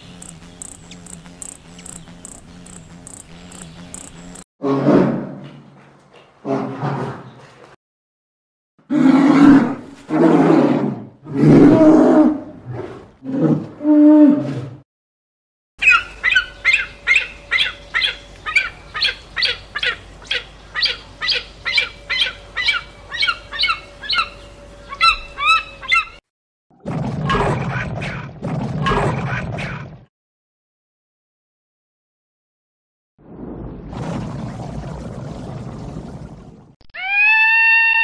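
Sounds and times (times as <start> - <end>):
bird sharp downward calls: 0.0 - 4.4.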